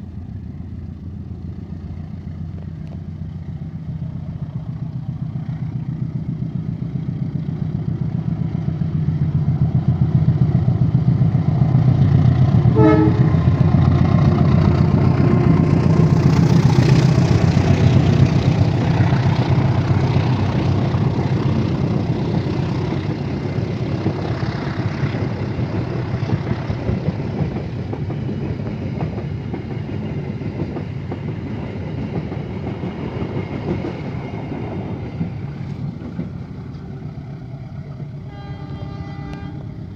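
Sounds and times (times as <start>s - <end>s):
passing train engine rumble: 0.0s - 39.9s
train horn toot: 12.7s - 13.5s, 38.2s - 39.9s.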